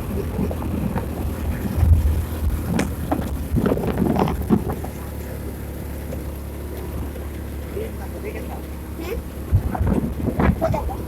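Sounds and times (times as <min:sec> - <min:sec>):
short knocks and rattles: 0:00.0 - 0:05.2, 0:09.5 - 0:11.0
wind on microphone: 0:00.0 - 0:05.2, 0:09.4 - 0:11.0
vehicle engine running: 0:00.0 - 0:11.0.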